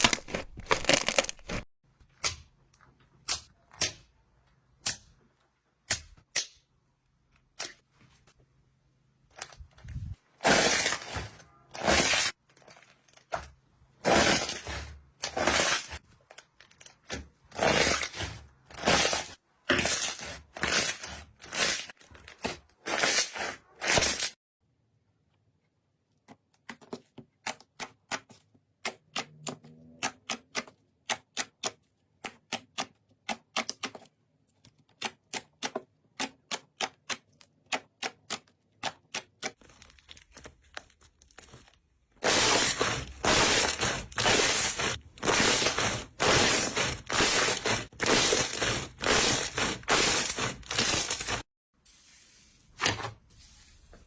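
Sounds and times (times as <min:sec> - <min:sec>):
crunchy slime crunching: 0:00.0 - 0:01.7.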